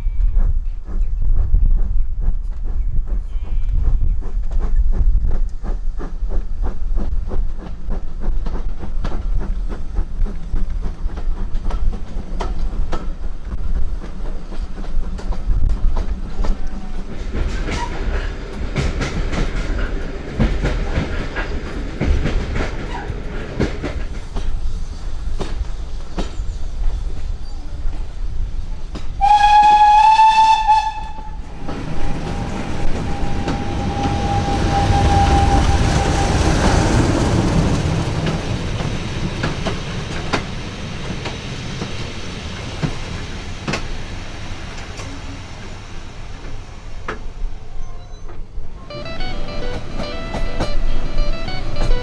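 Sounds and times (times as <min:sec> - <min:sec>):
train rumbling: 0:00.0 - 0:52.0
train horn blast: 0:29.2 - 0:37.6, 0:48.8 - 0:52.0
wheels clicking over rail joints: 0:30.7 - 0:45.3.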